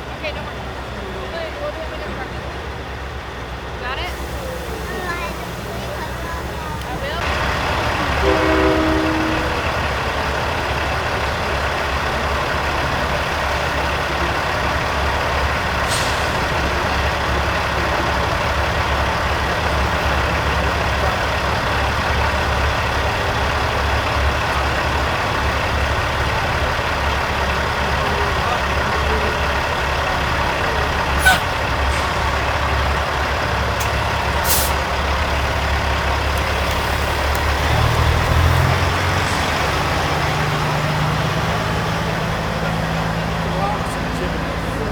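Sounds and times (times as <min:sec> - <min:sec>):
diesel truck engines running: 0:00.0 - 0:44.9
air brake hisses: 0:15.8 - 0:16.6, 0:31.2 - 0:32.4, 0:34.4 - 0:34.9.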